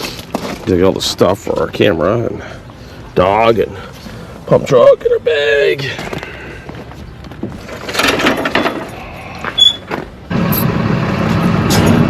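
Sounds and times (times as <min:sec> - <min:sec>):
clunks: 0:05.9 - 0:10.2
brief high squeal: 0:09.6 - 0:09.9
truck engine running: 0:10.0 - 0:12.0.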